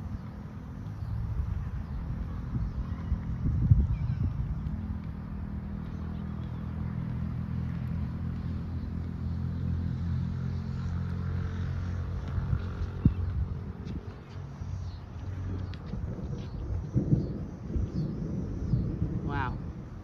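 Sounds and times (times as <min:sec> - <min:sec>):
storm wind buffeting microphone: 0:00.0 - 0:05.4, 0:15.0 - 0:20.0
low engine-like hum: 0:00.0 - 0:20.0.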